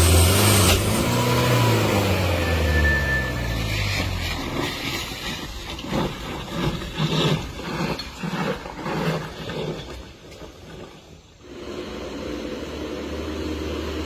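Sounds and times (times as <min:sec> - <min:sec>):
vehicle engine slowing: 0:00.0 - 0:07.6, 0:11.1 - 0:14.0.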